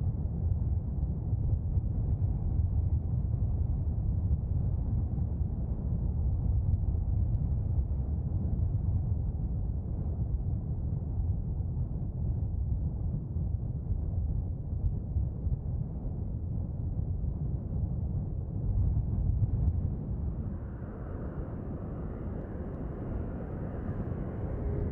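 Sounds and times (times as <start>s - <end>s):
jet engines low rumble: 0.0s - 24.9s.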